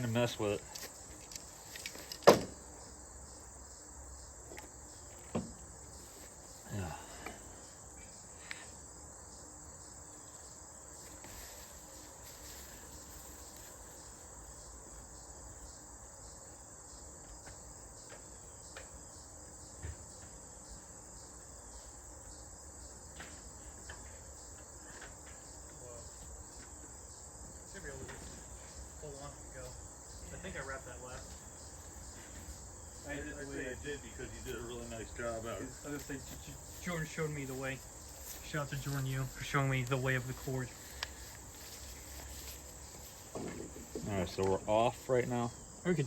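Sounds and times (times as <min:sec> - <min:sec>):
insects chirring: 0:00.0 - 0:46.0
quiet knocks: 0:04.5 - 0:05.6, 0:43.0 - 0:44.6.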